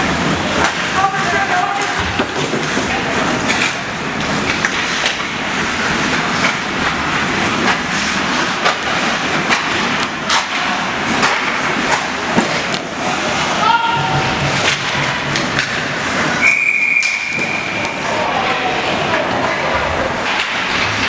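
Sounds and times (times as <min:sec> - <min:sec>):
hockey sticks and puck clacking: 0:00.0 - 0:21.0
skates scraping on ice: 0:00.6 - 0:13.6.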